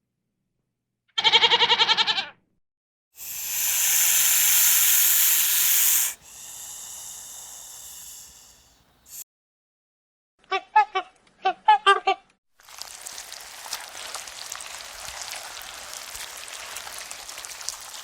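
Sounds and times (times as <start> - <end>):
quavering bleat: 1.2 - 2.4
loud hiss: 3.2 - 9.2.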